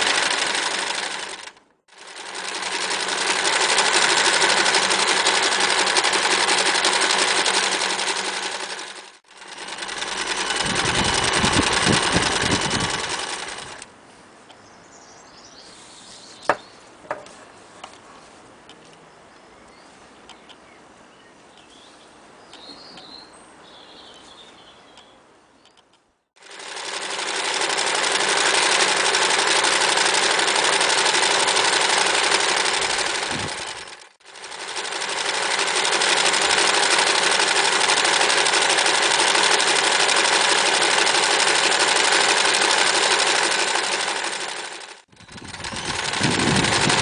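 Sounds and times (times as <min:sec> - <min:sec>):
electric sewing machine running: 0:00.0 - 0:13.9, 0:26.4 - 0:47.0
sharp clicks: 0:25.0 - 0:26.0.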